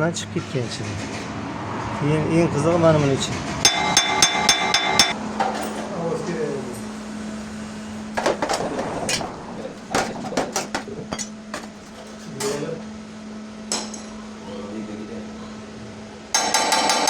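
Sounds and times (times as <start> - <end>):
steady low hum: 3.6 - 16.4
hammer knocking on sheet metal: 3.7 - 5.2.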